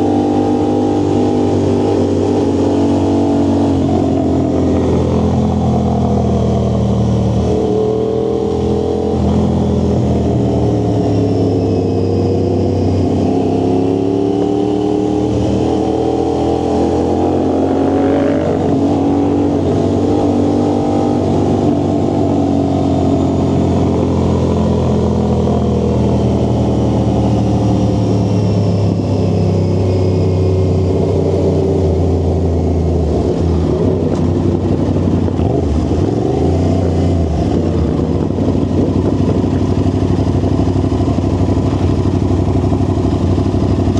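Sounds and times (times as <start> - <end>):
vehicle engine exhaust cruising: 0.0 - 43.9.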